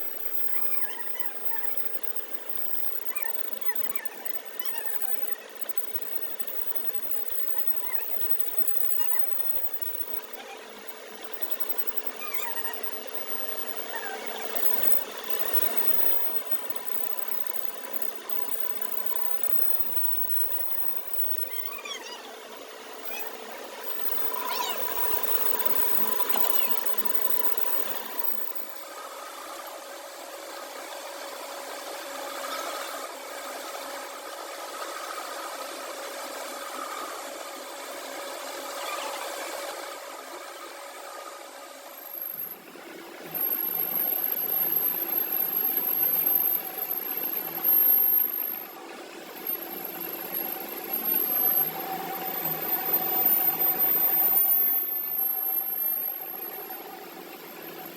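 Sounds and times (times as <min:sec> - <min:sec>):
machine hum: 0:00.0 - 0:28.9.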